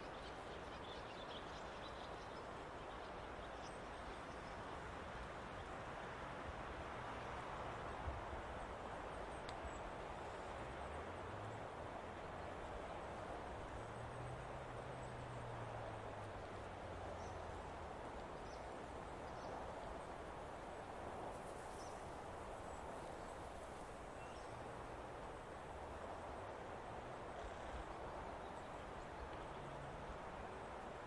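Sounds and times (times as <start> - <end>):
background hiss: 17.2 - 31.0.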